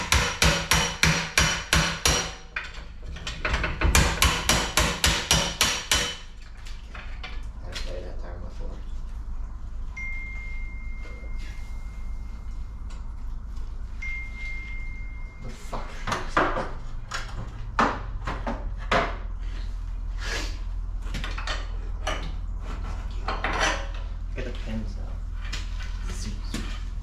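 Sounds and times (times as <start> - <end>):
steady low hum: 0.0 - 27.0
thin high tone: 9.9 - 12.8, 13.8 - 15.7
metal tools clanking: 21.2 - 24.2.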